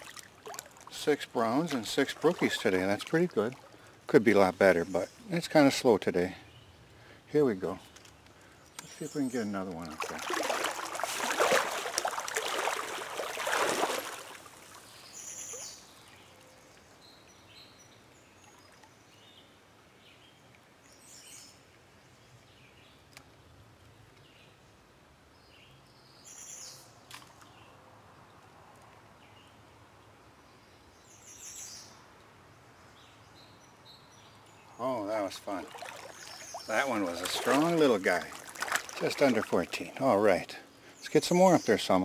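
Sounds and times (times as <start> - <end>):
quiet stream: 0.0 - 42.0
loud water splashing: 1.6 - 3.7, 9.8 - 14.8, 35.3 - 39.9.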